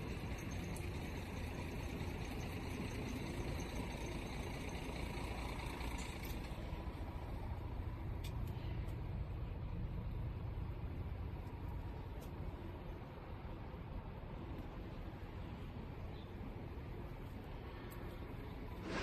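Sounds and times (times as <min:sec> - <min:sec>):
truck diesel engine rumbling: 0:00.0 - 0:11.7.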